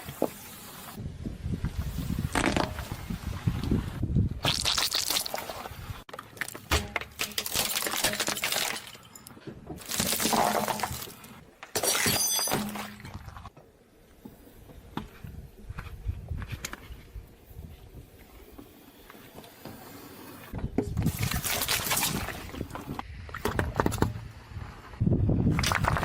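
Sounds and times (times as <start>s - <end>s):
glass crunching under tyre: 4.4s - 13.4s.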